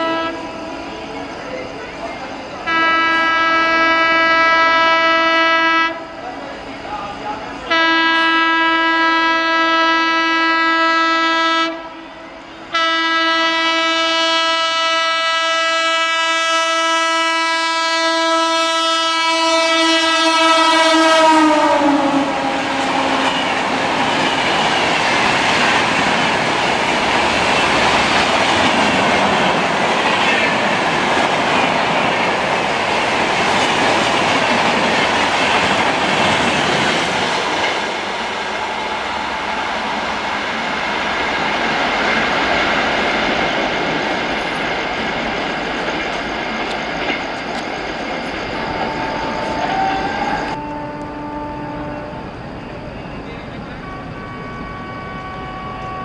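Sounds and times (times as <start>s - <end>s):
train horn blast: 0.0s - 0.7s, 2.6s - 6.2s, 7.7s - 24.4s, 48.6s - 52.4s, 53.8s - 56.0s
train rushing past: 0.0s - 56.0s.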